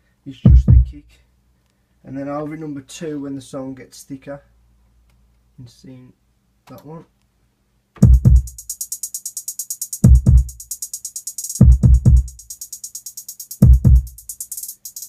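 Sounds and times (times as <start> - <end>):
deep kick drums: 0.5 - 1.0, 8.0 - 8.6, 10.0 - 10.6, 11.6 - 12.4, 13.6 - 14.2
rapid hi-hats: 8.0 - 15.0.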